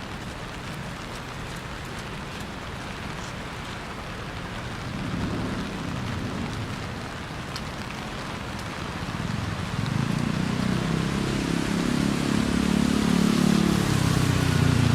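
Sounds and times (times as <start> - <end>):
light drip ticks: 0.0 - 10.8
low vehicle rumble: 0.0 - 14.9
rain hissing: 0.0 - 14.9.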